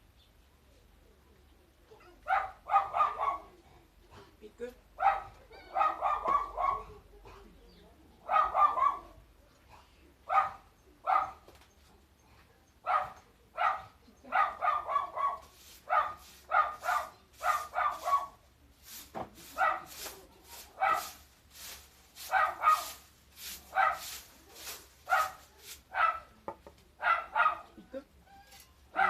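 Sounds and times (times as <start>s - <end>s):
dog barking: 2.2s - 3.6s, 5.0s - 7.4s, 8.2s - 9.2s, 10.3s - 11.5s, 12.8s - 18.4s, 19.5s - 20.0s, 20.6s - 21.2s, 22.2s - 23.0s, 23.7s - 26.4s, 27.0s - 27.8s.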